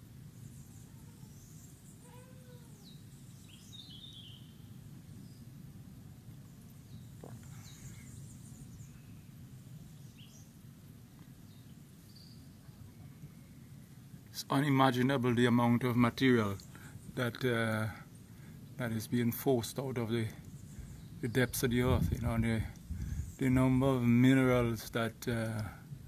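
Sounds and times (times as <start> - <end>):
low background rumble: 0.0 - 26.0
bird chirps and calls: 0.6 - 4.6.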